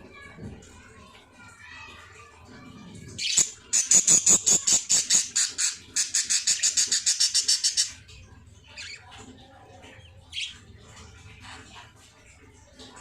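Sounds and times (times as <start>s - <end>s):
baby birds chirping: 3.2s - 8.1s.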